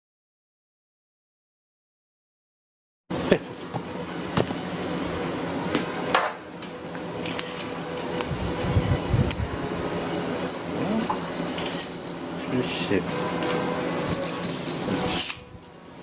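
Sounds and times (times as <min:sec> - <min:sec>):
metallic objects clinking: 0:10.4 - 0:13.0.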